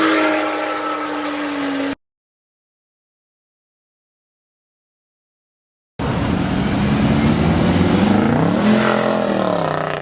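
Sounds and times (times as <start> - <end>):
car engine revving hard: 6.0 - 10.0.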